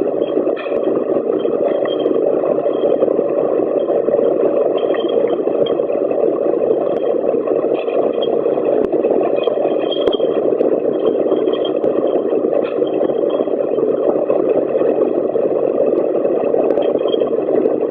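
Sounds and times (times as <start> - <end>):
machine whirring: 0.0 - 17.9.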